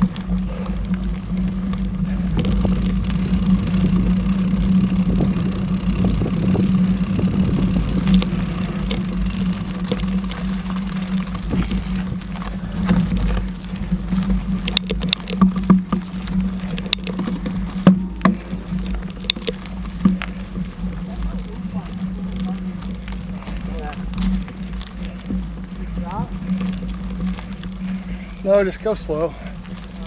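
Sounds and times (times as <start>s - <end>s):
bike clicking and rattling: 0.0s - 30.0s
bike tyres rumbling on dirt: 0.0s - 30.0s.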